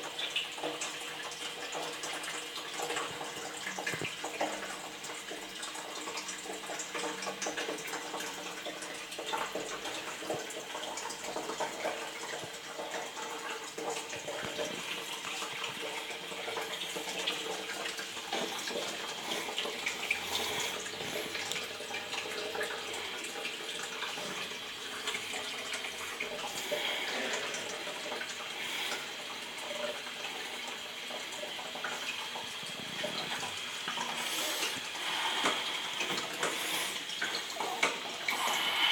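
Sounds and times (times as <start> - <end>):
water running in a toilet: 0.0 - 38.9.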